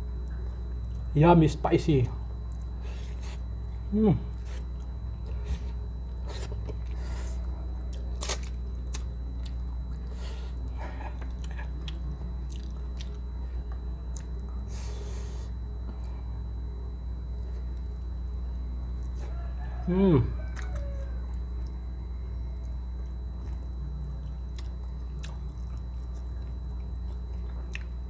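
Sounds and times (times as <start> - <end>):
low hum: 0.0 - 28.0
wet chewing with crunches: 4.4 - 14.7, 20.5 - 28.0.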